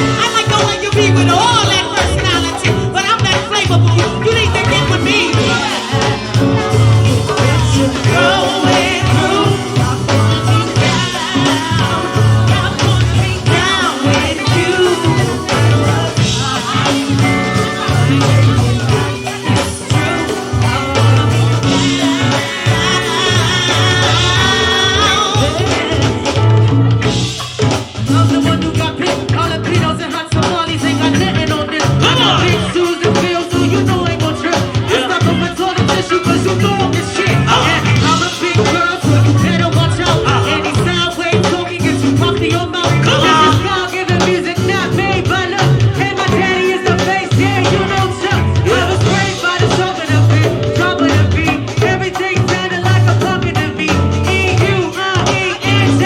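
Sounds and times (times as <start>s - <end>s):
bass line: 0.0s - 56.0s
live band playing: 0.0s - 56.0s
percussion: 0.0s - 56.0s
person singing: 0.0s - 56.0s.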